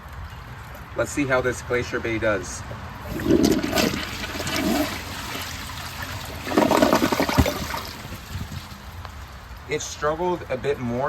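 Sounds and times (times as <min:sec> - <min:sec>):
toilet flushing and gurgling: 0:03.0 - 0:08.8.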